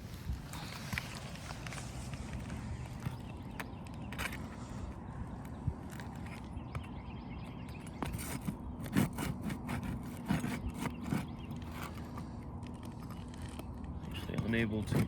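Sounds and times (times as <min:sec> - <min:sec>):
tool scraping roof shingles: 0:07.9 - 0:15.0.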